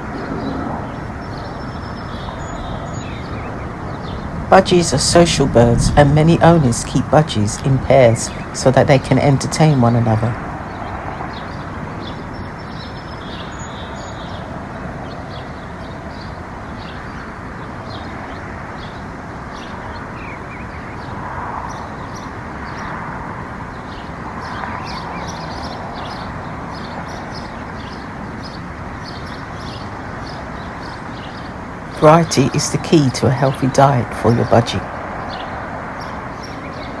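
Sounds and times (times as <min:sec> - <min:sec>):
steady background rumble: 0:00.0 - 0:14.8
small birds chirping: 0:00.0 - 0:37.0.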